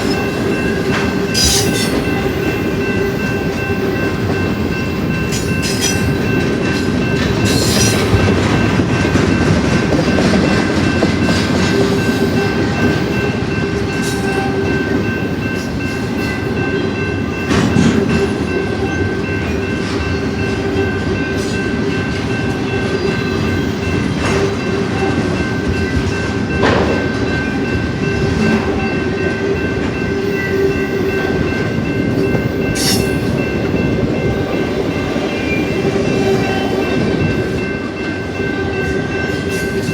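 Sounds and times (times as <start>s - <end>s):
train wheels rumbling on rail: 0.0s - 39.9s
sharp metal clanks: 0.9s - 2.2s.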